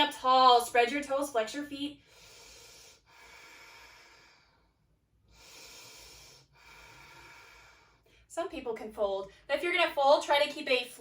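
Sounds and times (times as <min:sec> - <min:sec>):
person breathing slowly: 0:02.0 - 0:08.3.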